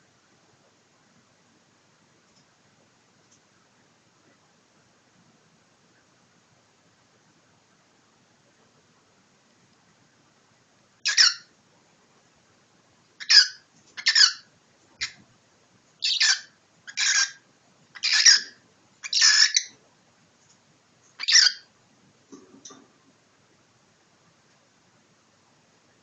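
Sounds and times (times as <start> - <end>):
cockatiel hissing squawks: 16.0 - 17.4, 18.0 - 19.7, 21.2 - 21.6.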